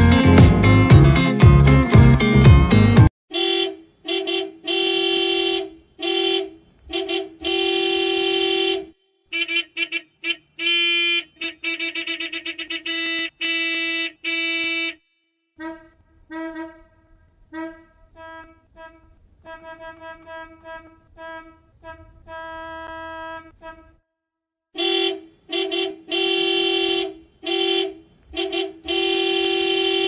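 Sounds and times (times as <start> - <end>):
car horn honking: 3.3 - 24.0, 24.8 - 30.0.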